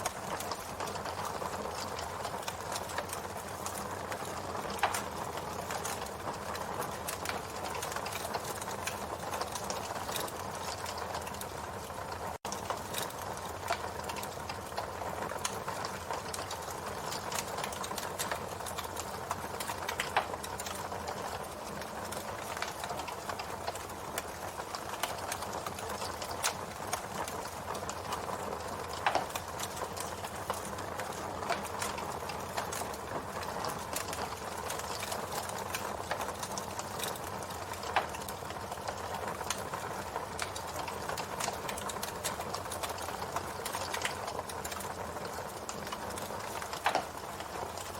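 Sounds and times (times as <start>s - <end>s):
campfire crackling: 0.0s - 47.9s
loud fire pops: 25.0s - 47.9s.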